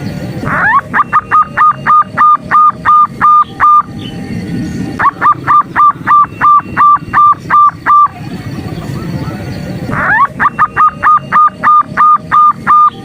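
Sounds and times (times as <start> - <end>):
dove call short clear notes: 9.9 - 13.0.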